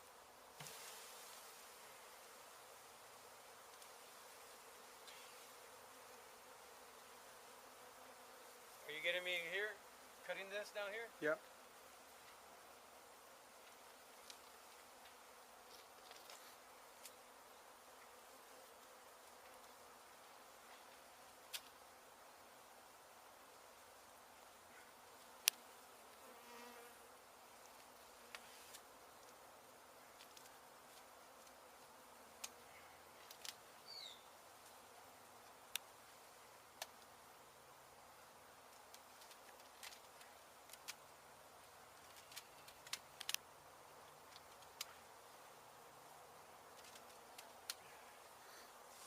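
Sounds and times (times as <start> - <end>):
honey bees buzzing: 0.0 - 49.0
bees buzzing: 16.6 - 38.5
faint clicks: 33.2 - 33.6, 35.4 - 35.9, 38.7 - 41.0, 42.0 - 43.4, 44.3 - 45.0, 46.7 - 47.9.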